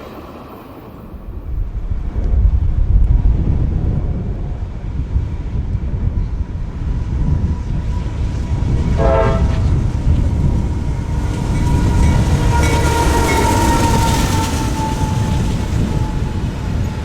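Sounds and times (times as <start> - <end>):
freight train approaching: 0.0 - 17.0
wind buffeting microphone: 0.0 - 17.0
locomotive horn toot: 8.8 - 9.9, 11.4 - 16.9.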